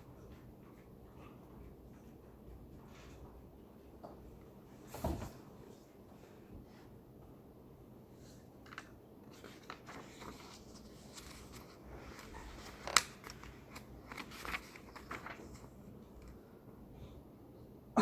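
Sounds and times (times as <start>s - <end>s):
low room hum: 0.0s - 18.0s
small clicks and rustles: 8.6s - 16.4s.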